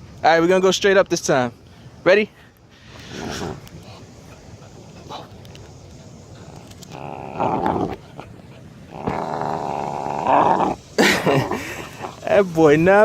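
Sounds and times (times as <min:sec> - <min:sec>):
puppy growling: 0:06.3 - 0:12.3.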